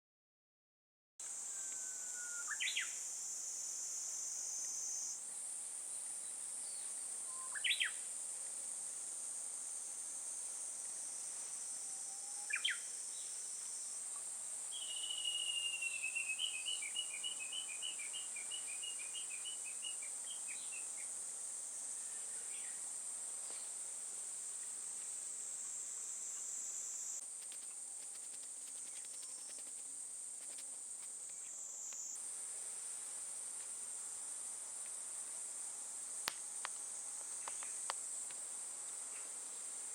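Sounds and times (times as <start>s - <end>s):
insects chirring: 1.2s - 39.9s
bird calls and trill: 12.4s - 12.9s, 14.7s - 20.9s.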